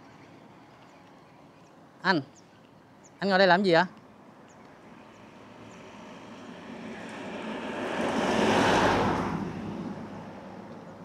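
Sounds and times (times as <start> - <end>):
road vehicle passing by: 4.8 - 11.0.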